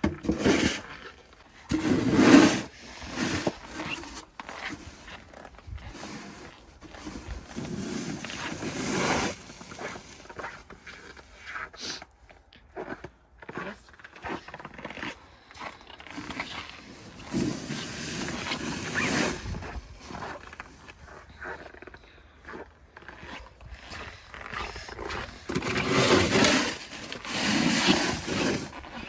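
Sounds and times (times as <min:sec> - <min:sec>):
snow shovel scraping snow: 0:00.2 - 0:12.0, 0:16.0 - 0:21.7, 0:24.0 - 0:29.0.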